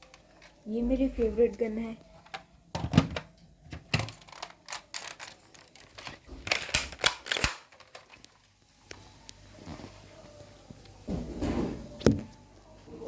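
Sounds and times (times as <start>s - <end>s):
toy gun plastic clicks: 3.9s - 8.4s.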